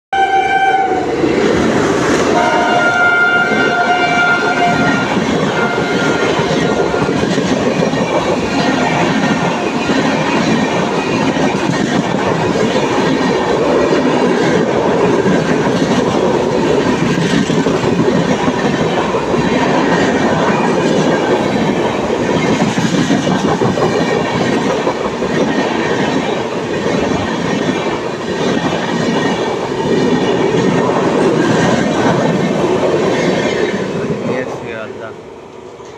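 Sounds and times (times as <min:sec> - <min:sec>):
train horn: 0:00.2 - 0:01.2, 0:02.3 - 0:07.3
train wheels clattering on rails: 0:01.1 - 0:34.9.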